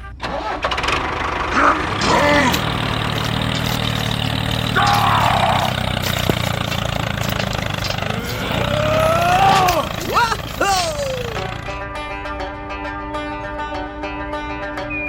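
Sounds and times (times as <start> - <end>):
small tractor engine running: 0.0 - 12.1.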